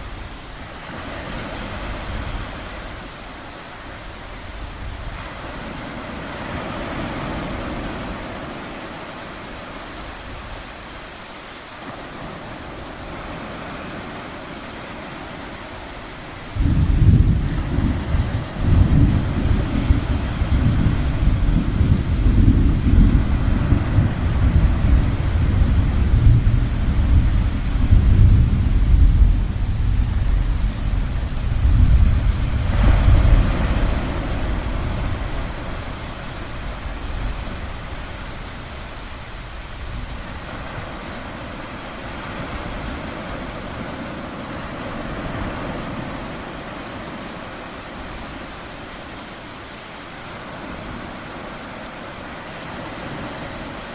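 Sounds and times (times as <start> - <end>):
ocean waves washing in: 0.0 - 53.9
rolling thunder rumble: 16.5 - 41.6.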